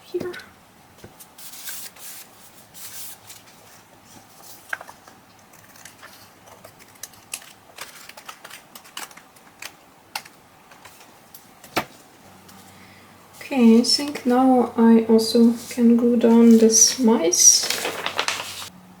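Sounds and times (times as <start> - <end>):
paper clicks and rustles: 2.8 - 11.1, 16.3 - 18.7.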